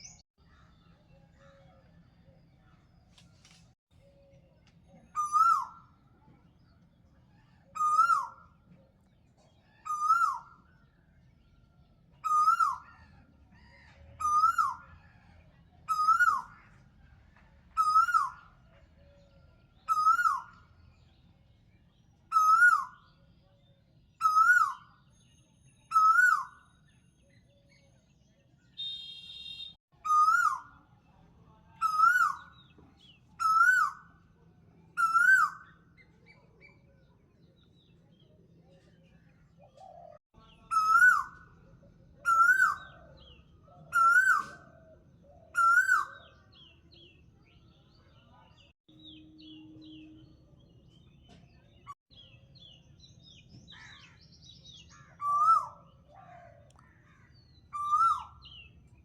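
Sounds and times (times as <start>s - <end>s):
bird call: 42.2s - 44.7s, 57.7s - 58.6s.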